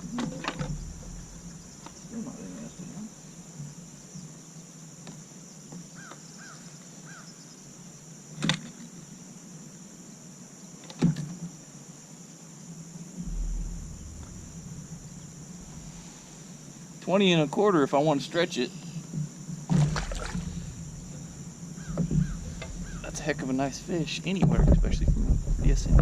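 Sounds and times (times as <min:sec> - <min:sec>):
low rumble: 0:00.0 - 0:03.5, 0:13.2 - 0:16.9, 0:19.8 - 0:26.0
high-pitched insect chorus: 0:00.0 - 0:26.0
sharp knocks: 0:13.2 - 0:16.2, 0:19.2 - 0:25.8.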